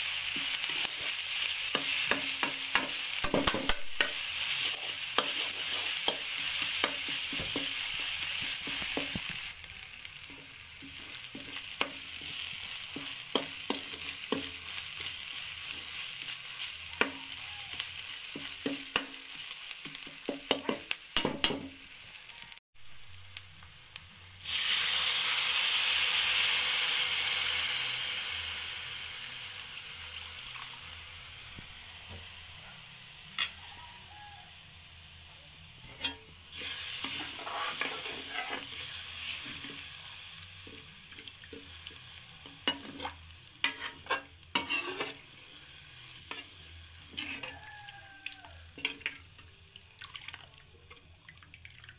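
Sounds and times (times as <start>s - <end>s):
loud sizzle from water: 0.0s - 34.5s, 36.4s - 50.8s
masala sizzling in a pan: 0.0s - 51.2s
ladle scraping and clinking pan: 35.8s - 36.3s, 37.0s - 38.8s, 42.6s - 45.2s.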